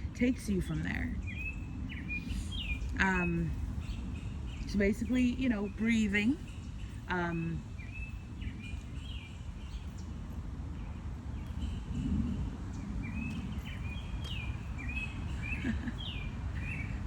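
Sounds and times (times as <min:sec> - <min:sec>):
birds chirping: 0:00.0 - 0:17.0
low outdoor rumble: 0:00.0 - 0:17.0.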